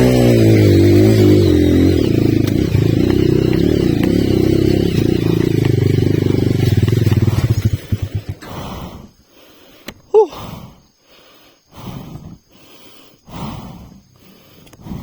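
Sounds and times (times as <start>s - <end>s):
motorcycle engine running: 0.0s - 8.9s.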